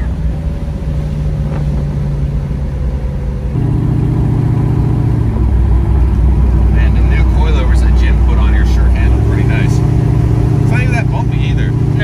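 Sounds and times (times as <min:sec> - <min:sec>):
car engine drone from cabin: 0:00.0 - 0:12.0.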